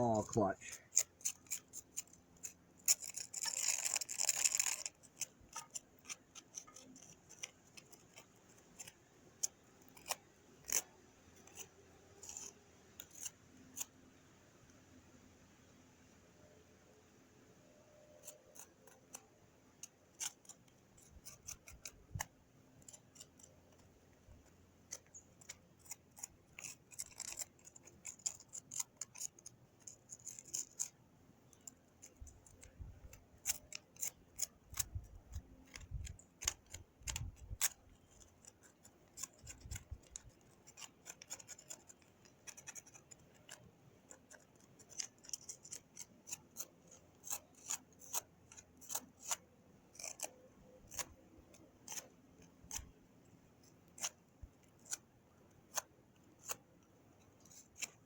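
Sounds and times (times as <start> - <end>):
hand tools clicking and scraping: 18.2 - 49.4.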